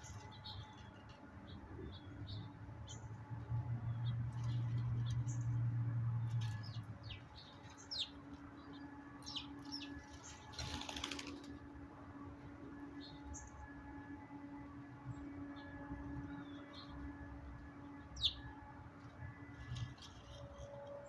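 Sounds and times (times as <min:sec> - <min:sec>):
small birds chirping: 0:06.5 - 0:11.2
wings fluttering: 0:09.6 - 0:11.6.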